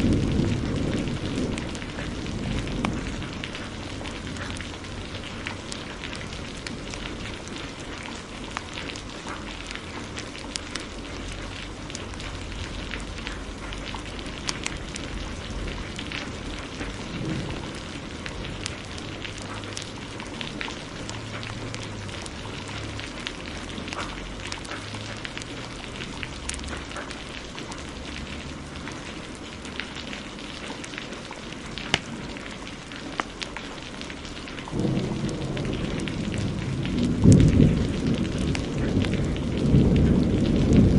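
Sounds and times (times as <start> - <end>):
heavy rain hissing: 0.0 - 40.9
wood fire crackling: 0.0 - 40.9.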